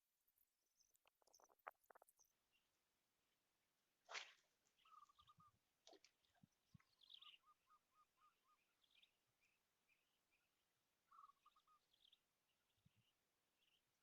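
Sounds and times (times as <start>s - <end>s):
bird chirping: 0.3s - 2.7s, 6.3s - 10.5s, 11.1s - 13.8s.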